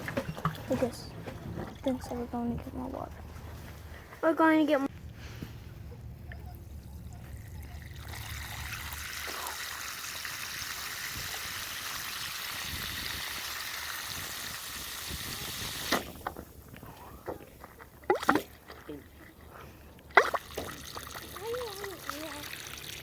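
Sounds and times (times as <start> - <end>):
water running into a jug: 7.4 - 16.4, 20.2 - 23.0.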